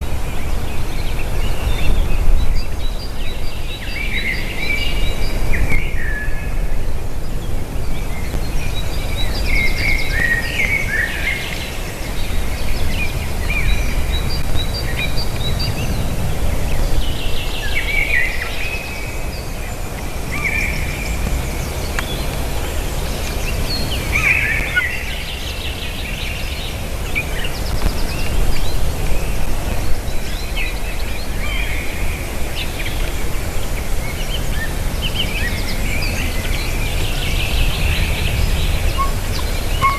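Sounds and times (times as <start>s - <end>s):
wind rumble on microphone: 0.0s - 39.9s
bird of prey chirping calls: 35.4s - 39.9s.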